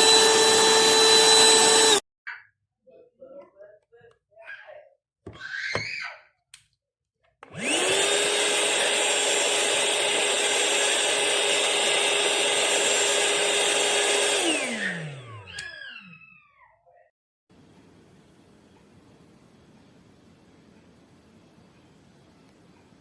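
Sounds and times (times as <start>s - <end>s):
handheld vacuum cleaner motor whine: 0.0s - 2.0s, 7.4s - 16.5s.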